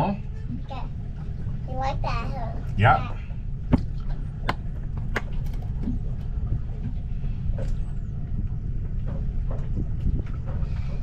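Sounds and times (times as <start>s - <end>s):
boat engine running: 0.0s - 11.0s
faint clicks and knocks: 3.7s - 11.0s.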